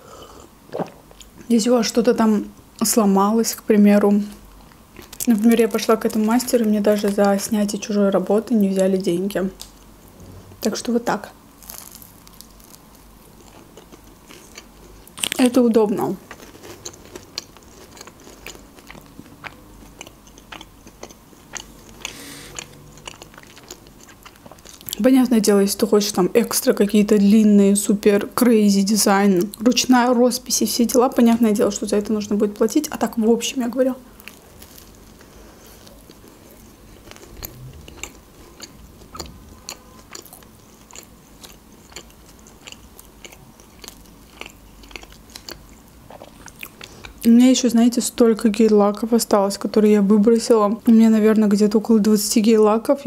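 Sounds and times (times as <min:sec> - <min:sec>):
breathy hiss: 0:00.0 - 0:00.5, 0:22.1 - 0:22.6
chewing pastry: 0:11.6 - 0:25.0, 0:34.1 - 0:47.3
wet chewing mouth clicks: 0:36.1 - 0:47.2.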